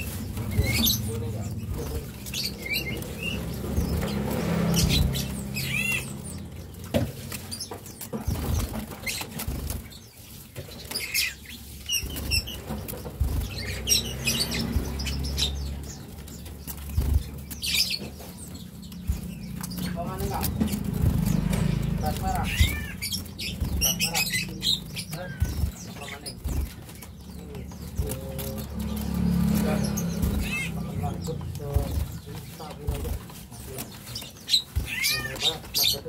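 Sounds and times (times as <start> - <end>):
birds fluttering wings: 0.0 - 36.0.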